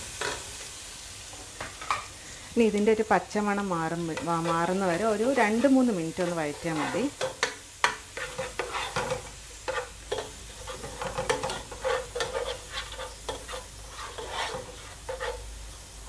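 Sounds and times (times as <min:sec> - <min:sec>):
aromatics sizzling in oil: 0:00.0 - 0:16.0
spatula stirring and scraping: 0:03.6 - 0:15.8.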